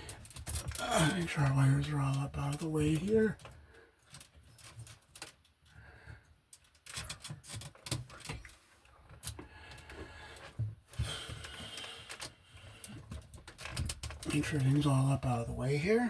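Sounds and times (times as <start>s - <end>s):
wires clicking and knocking in box: 0.0s - 5.5s, 6.5s - 8.5s, 9.1s - 14.9s.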